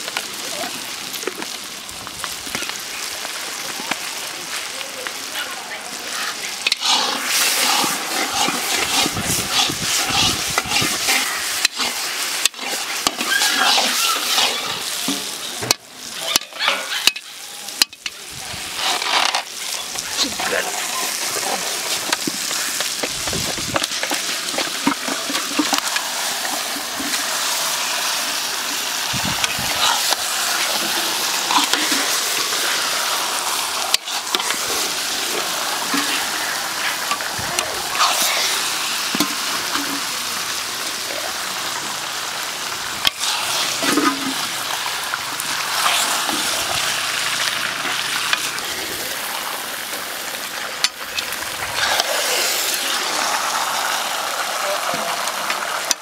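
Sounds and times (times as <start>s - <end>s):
chicken sizzling in masala: 0.0s - 56.0s
metal ladle scraping a pan: 6.1s - 15.4s, 16.2s - 18.0s, 18.7s - 21.5s, 29.4s - 33.1s, 35.8s - 40.0s, 43.0s - 44.7s.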